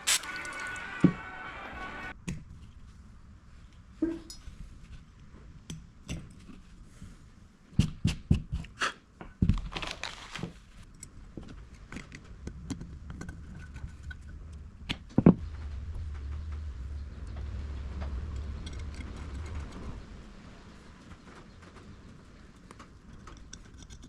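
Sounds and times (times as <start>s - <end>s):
small hard parts clicking and knocking: 10.8s - 15.4s, 21.0s - 24.0s.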